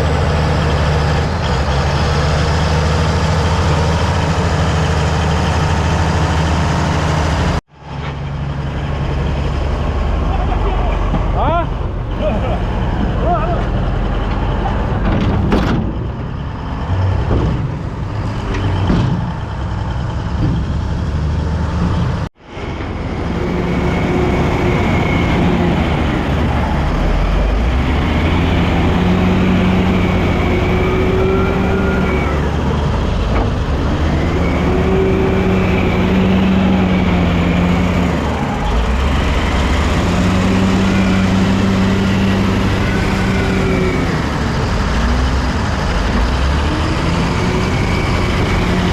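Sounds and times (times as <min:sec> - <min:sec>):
bulldozer diesel engine under load: 0:00.0 - 0:48.9
metal knocks and clanks: 0:12.9 - 0:21.0.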